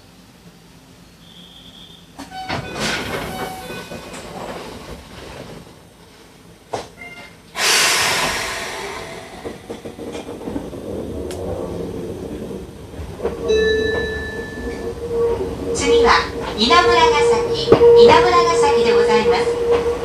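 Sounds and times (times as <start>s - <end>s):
train clatter: 2.2s - 20.0s
air brakes hissing: 7.5s - 10.8s
train wheel clicks: 9.3s - 11.6s.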